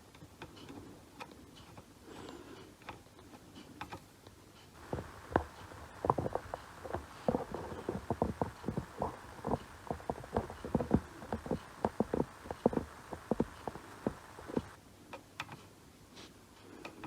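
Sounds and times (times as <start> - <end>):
faint scratchy noise: 4.8 - 14.8.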